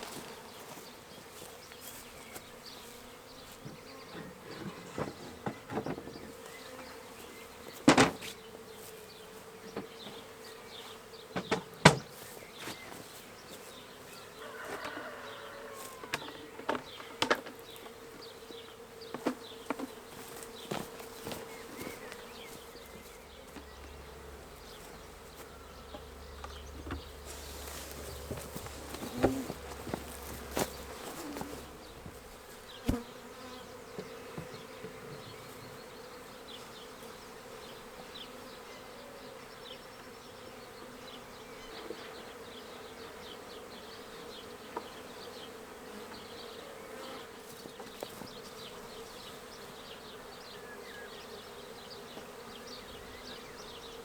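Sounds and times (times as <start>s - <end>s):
bees buzzing: 0.0s - 54.0s.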